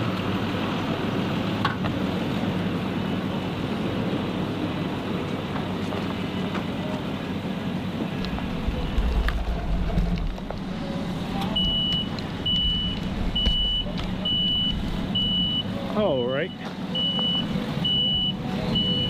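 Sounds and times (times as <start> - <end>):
truck engine running under load: 0.0 - 19.0
backup alarm beeping: 11.4 - 15.7, 16.9 - 19.0.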